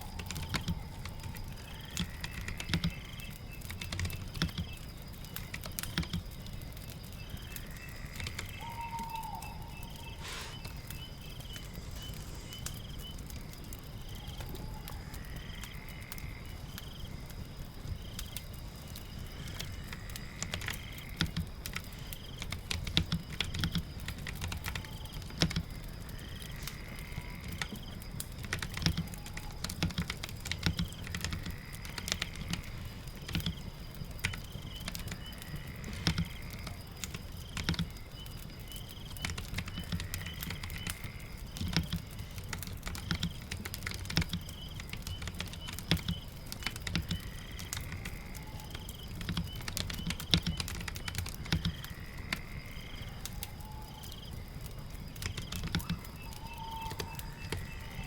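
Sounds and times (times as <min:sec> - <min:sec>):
crackling fire: 0:00.0 - 0:58.0
rain: 0:00.0 - 0:58.0
keyboard typing: 0:00.2 - 0:03.0, 0:03.6 - 0:04.8, 0:05.6 - 0:06.2, 0:28.4 - 0:32.6, 0:35.9 - 0:37.9, 0:41.6 - 0:47.9, 0:48.8 - 0:51.9, 0:55.2 - 0:57.8.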